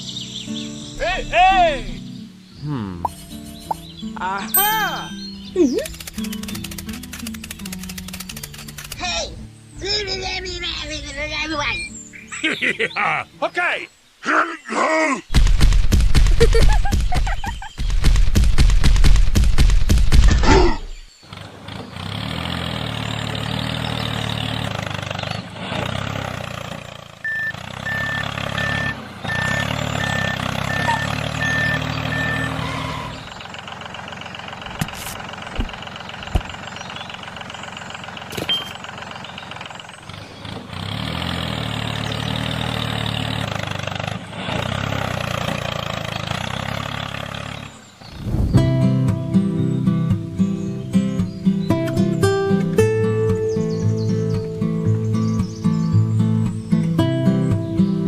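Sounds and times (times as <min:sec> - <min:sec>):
tractor engine running: 0:03.0 - 0:12.3, 0:15.3 - 0:58.0
rapid knocks: 0:15.3 - 0:20.4.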